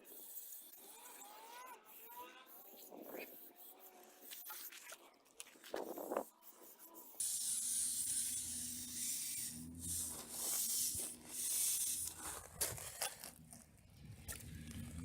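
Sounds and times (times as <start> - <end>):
faint low motor hum: 5.8 - 15.0.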